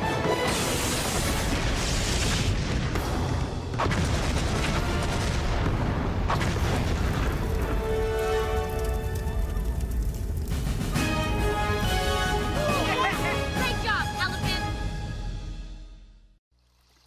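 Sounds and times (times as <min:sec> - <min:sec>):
music: 0:00.0 - 0:01.6, 0:07.5 - 0:16.4
explosions: 0:00.4 - 0:11.0.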